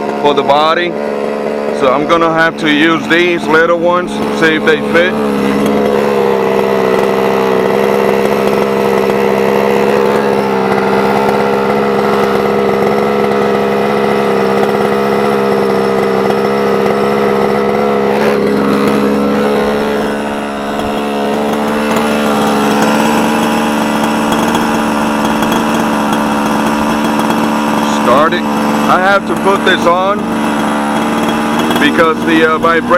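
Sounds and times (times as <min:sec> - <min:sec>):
two-stroke engine idling: 0:00.0 - 0:32.9.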